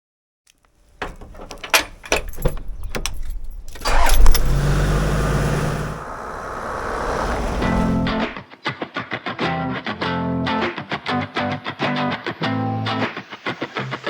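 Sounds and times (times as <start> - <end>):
sharp clicks and rattles: 0.5 - 8.4
car engine starting and running: 1.0 - 8.4.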